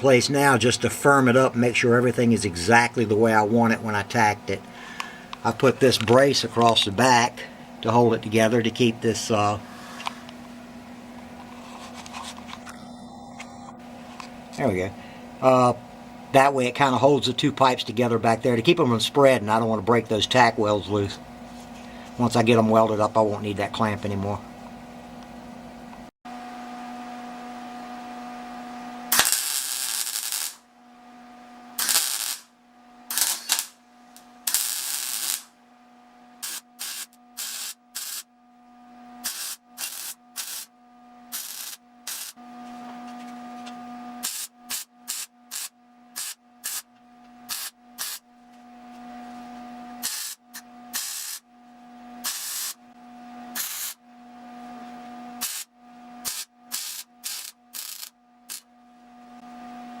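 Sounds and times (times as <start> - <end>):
electrical hum: 0.0 - 60.0
arc welding crackle: 29.1 - 30.6, 31.8 - 32.5, 33.1 - 35.5, 36.4 - 38.3, 39.2 - 40.7, 41.3 - 42.4, 44.2 - 46.9, 47.5 - 48.2, 50.0 - 51.5, 52.2 - 52.8, 53.6 - 54.0, 55.4 - 58.7.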